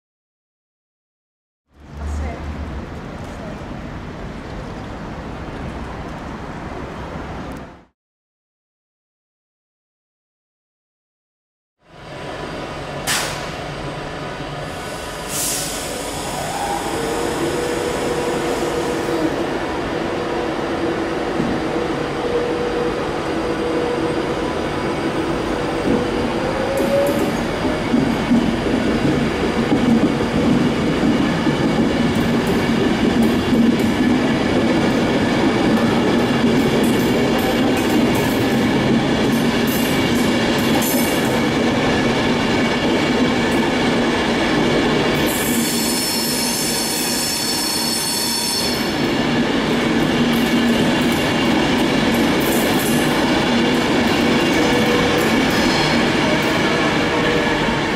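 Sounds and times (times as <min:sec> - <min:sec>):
electric train whine: 0:11.9 - 0:57.9.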